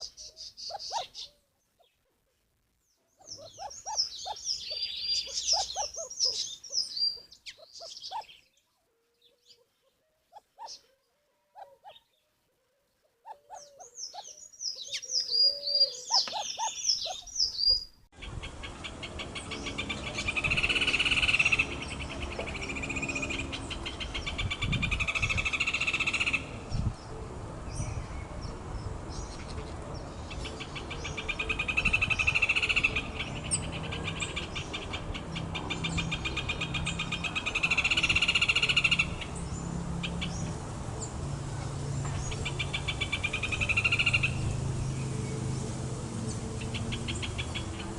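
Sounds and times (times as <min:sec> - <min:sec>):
birds whistling: 0:00.0 - 0:01.4, 0:03.1 - 0:08.6, 0:10.4 - 0:10.9, 0:13.2 - 0:26.5.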